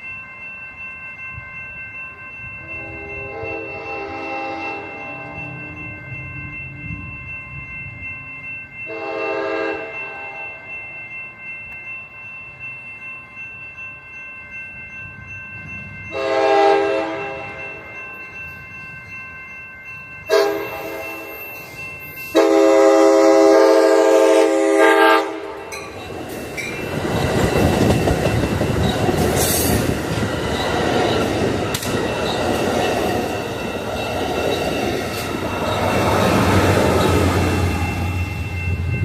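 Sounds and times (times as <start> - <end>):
train rumble and wheel noise: 0.0 - 39.0
train air horn blasts: 2.8 - 5.4, 8.9 - 10.4, 16.2 - 17.5, 20.3 - 21.2, 22.4 - 25.7.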